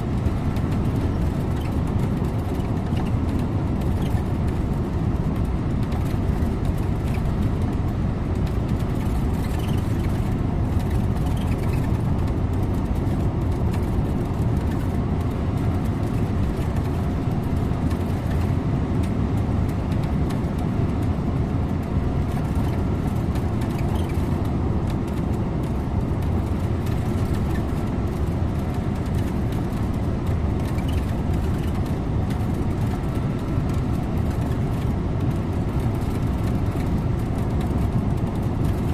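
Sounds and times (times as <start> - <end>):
bus engine and tyre drone: 0.0 - 38.9.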